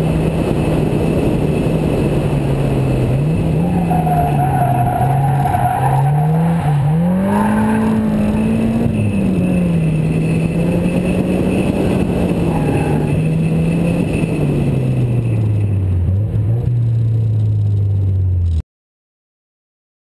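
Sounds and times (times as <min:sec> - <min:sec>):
car engine revving hard: 0:02.8 - 0:14.2.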